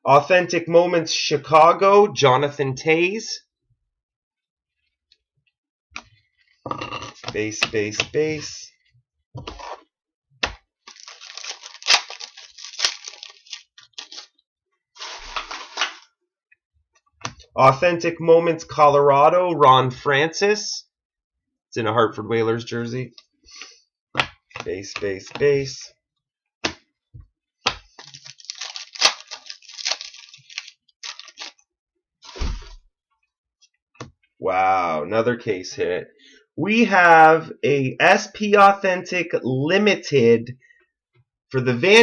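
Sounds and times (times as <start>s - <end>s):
cards rustling and crinkling: 10.8s - 14.4s, 15.0s - 16.1s, 27.7s - 31.6s
dull thump: 32.3s - 32.8s.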